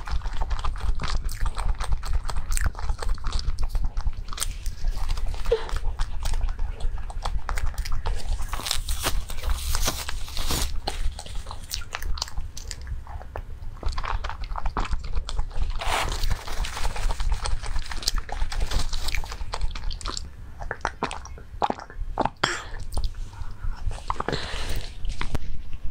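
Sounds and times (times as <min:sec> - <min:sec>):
chewing and biting: 0:00.0 - 0:25.9
plastic crinkling: 0:08.1 - 0:11.8, 0:15.7 - 0:19.6.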